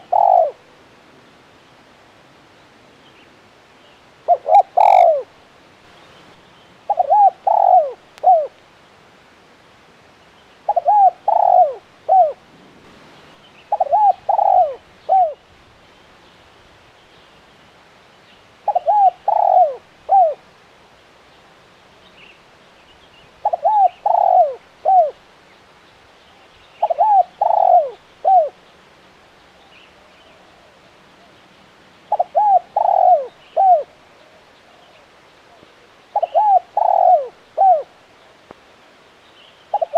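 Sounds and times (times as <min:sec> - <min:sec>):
dove cooing: 0:00.0 - 0:00.7, 0:04.2 - 0:05.3, 0:06.9 - 0:08.6, 0:10.7 - 0:12.9, 0:13.6 - 0:15.5, 0:18.6 - 0:20.5, 0:23.4 - 0:25.2, 0:26.8 - 0:28.6, 0:32.1 - 0:38.0.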